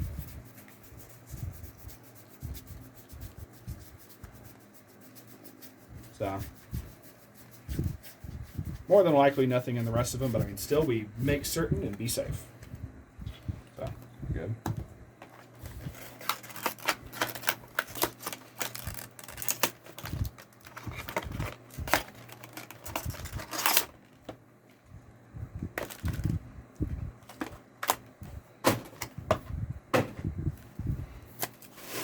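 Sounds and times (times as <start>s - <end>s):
cards rustling: 15.2s - 24.4s, 25.8s - 26.4s.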